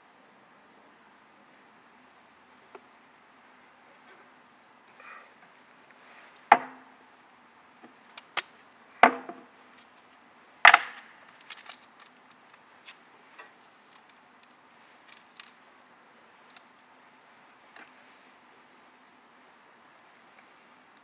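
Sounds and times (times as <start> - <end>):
loud wooden knocks: 6.5 - 6.9, 9.0 - 9.5, 10.7 - 11.1.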